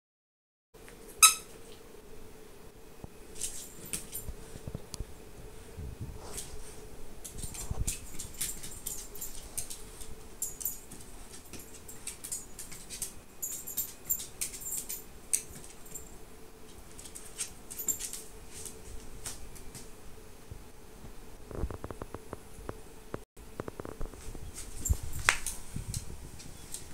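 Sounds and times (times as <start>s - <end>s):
faint steady hum: 0.8s - 26.9s
squeaky toy squeaks: 1.2s - 1.5s.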